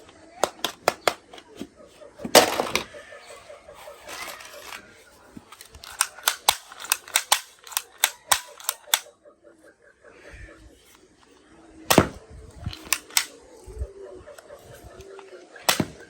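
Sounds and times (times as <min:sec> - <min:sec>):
toy guns firing: 0:00.4 - 0:01.5, 0:02.3 - 0:03.0, 0:04.0 - 0:09.1, 0:11.9 - 0:13.5, 0:15.6 - 0:16.0
sharp clicks: 0:05.5 - 0:09.1, 0:12.8 - 0:13.4.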